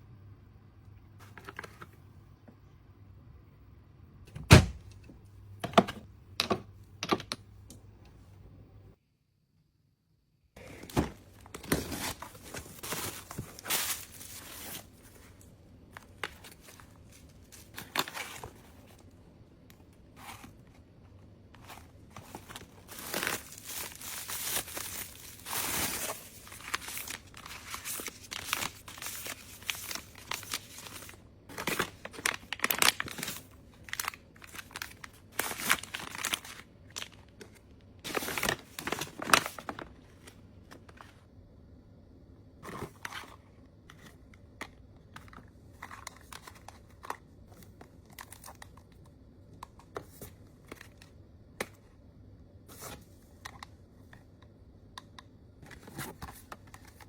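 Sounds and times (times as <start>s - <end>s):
packaging crinkling and rustling: 10.6s - 41.2s, 45.1s - 48.9s
packaging tearing: 22.2s - 37.2s.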